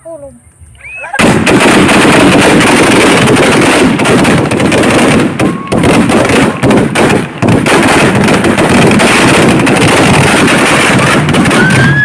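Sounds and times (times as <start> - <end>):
firecrackers crackling: 1.2 - 12.0.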